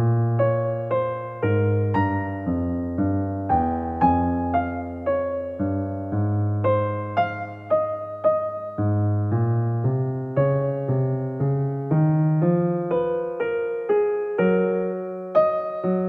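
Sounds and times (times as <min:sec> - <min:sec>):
electric piano slow melody: 0:00.0 - 0:16.0.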